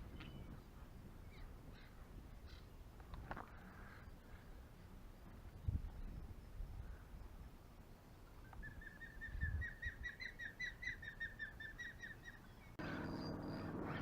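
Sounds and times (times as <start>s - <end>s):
faint motor hum: 11.6s - 14.0s.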